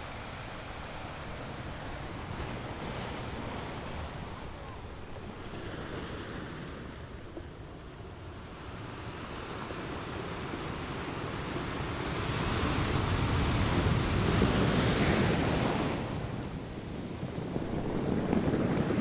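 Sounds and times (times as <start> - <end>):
sea surf wave washing: 11.2 - 19.0.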